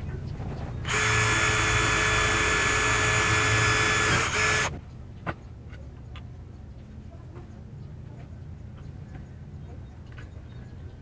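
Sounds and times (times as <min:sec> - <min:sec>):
trim router whining: 0:00.9 - 0:04.8.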